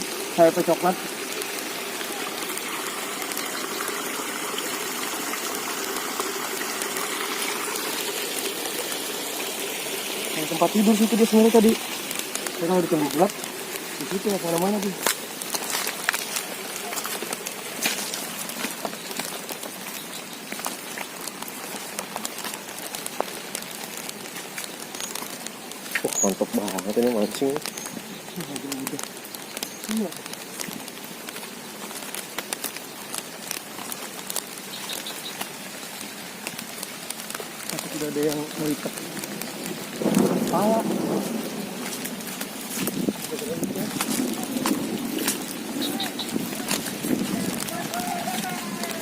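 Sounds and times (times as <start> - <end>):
heavy rain falling: 0.0 - 49.0
water rushing: 0.0 - 49.0.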